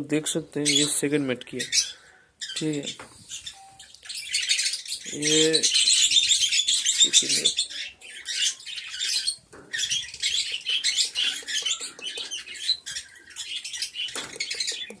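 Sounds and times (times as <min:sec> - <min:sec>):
budgerigars chirping: 0:00.6 - 0:15.0.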